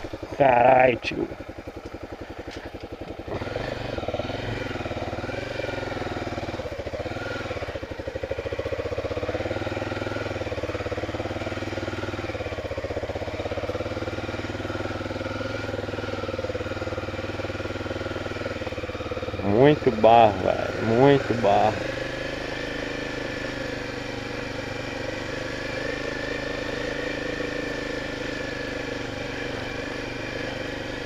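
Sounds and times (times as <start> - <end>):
motorcycle engine under load: 0.0 - 31.0.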